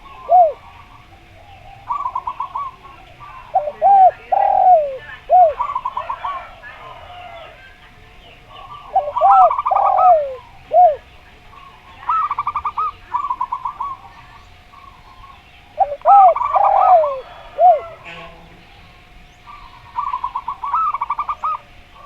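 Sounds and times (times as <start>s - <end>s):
dove falling coos: 0.0s - 0.8s, 1.9s - 7.6s, 8.9s - 11.0s, 15.8s - 18.3s
dove staccato coos: 0.0s - 7.8s, 8.4s - 18.4s
faint small birds chirping: 0.0s - 22.0s.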